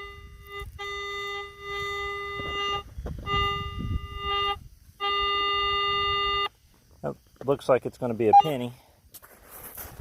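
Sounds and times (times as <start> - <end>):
metal detector beep: 0.0 - 6.6, 8.3 - 8.7.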